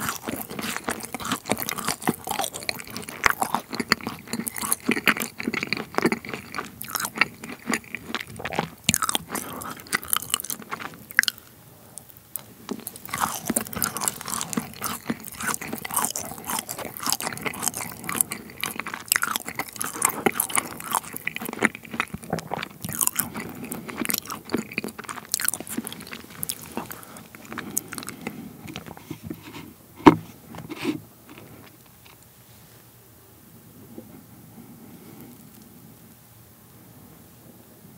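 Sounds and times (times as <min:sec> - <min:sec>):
wet mouth sounds: 0:00.0 - 0:29.1
crunchy chewing: 0:00.0 - 0:29.7.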